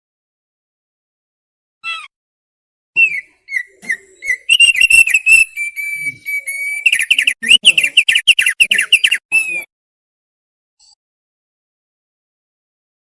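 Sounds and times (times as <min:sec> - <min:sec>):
bird singing whistled notes: 0:03.0 - 0:09.7.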